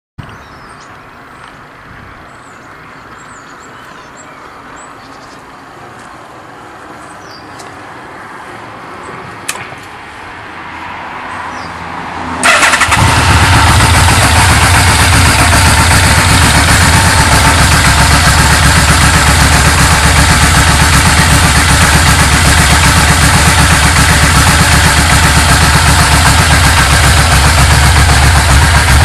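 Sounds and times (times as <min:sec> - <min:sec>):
motorcycle engine starting and running: 0:12.4 - 0:29.0.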